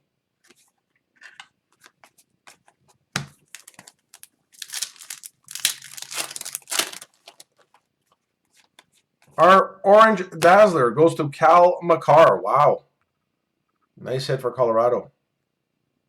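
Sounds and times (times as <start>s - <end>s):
foil wrapper crinkling and tearing: 3.4s - 7.9s.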